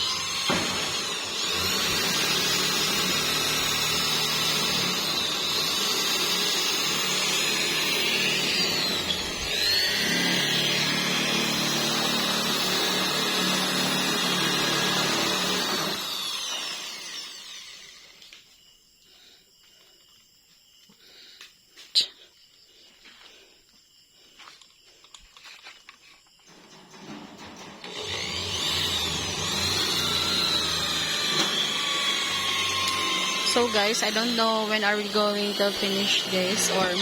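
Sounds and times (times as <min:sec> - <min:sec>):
electric power tool running: 0:00.0 - 0:18.3, 0:26.8 - 0:37.0.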